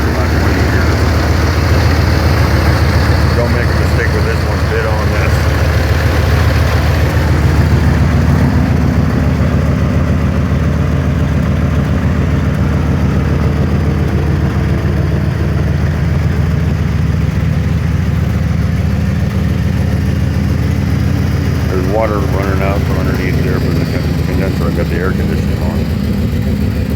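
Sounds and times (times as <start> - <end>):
car engine idling: 0.0 - 26.9.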